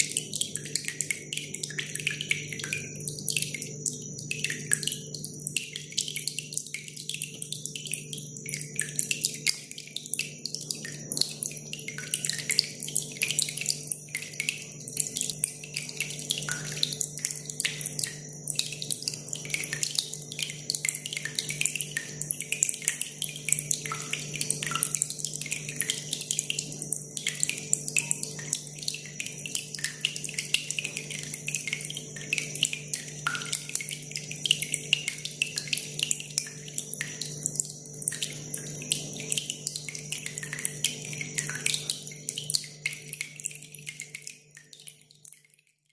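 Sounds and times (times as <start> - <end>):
water trickling and dripping: 0.0 - 45.9.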